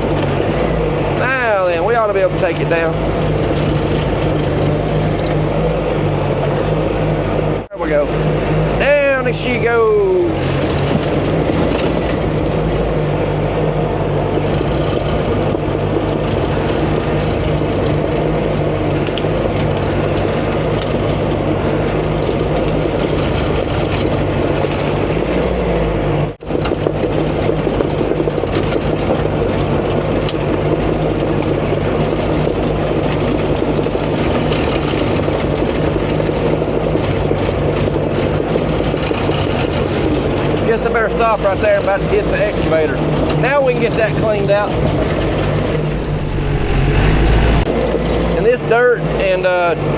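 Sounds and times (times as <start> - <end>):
bulldozer diesel engine working: 0.0 - 26.4, 43.0 - 47.7.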